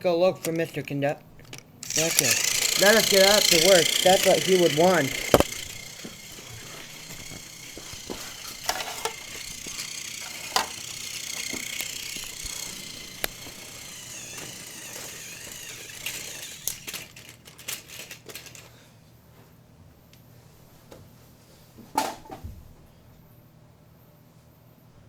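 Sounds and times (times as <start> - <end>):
clicks and rattles on track: 0.4 - 18.7
toy train motor whine: 0.4 - 18.8.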